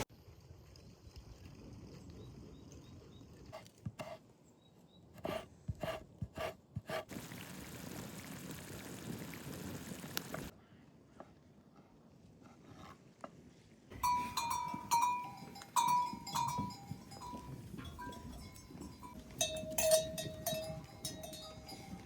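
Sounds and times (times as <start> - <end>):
outdoor hiss: 7.1 - 10.5.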